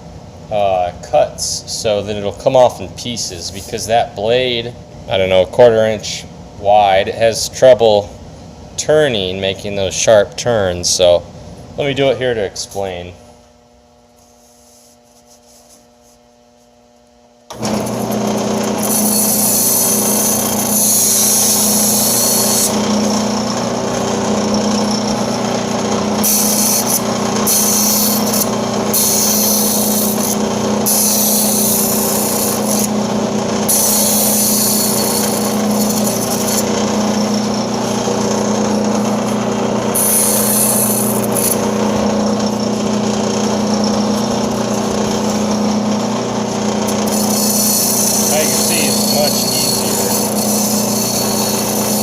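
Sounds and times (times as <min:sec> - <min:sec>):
band saw running: 0:17.5 - 0:52.0
blade cutting foam hiss: 0:18.7 - 0:23.1, 0:26.2 - 0:33.0, 0:33.7 - 0:37.5, 0:39.9 - 0:41.6, 0:47.0 - 0:52.0.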